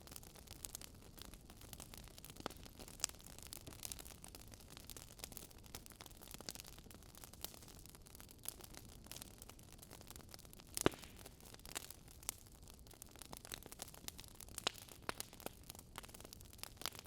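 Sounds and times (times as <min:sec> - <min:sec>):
logs crackling in a fireplace: 0:00.0 - 0:17.0
sharp pops and snaps: 0:10.8 - 0:11.2.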